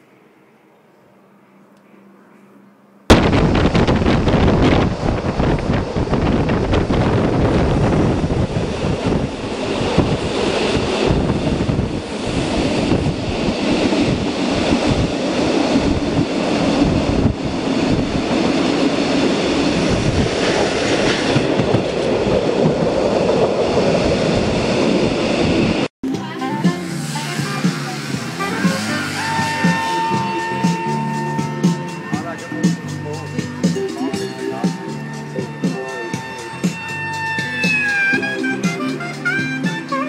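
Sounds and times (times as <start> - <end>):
train wheels rumbling on rails: 3.1 - 25.9, 26.5 - 40.0
knocks of train wheels: 19.8 - 23.4
music: 26.0 - 40.0.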